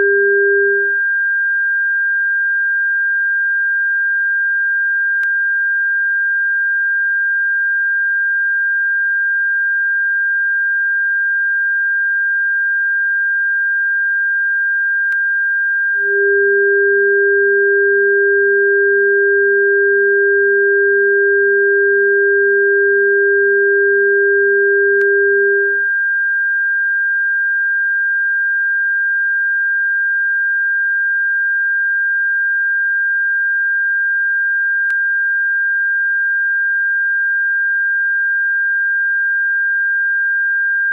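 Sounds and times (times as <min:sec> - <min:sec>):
lower steady tone: 0:00.0 - 0:01.3, 0:15.6 - 0:26.0
high-pitched sine tone: 0:00.0 - 0:40.9.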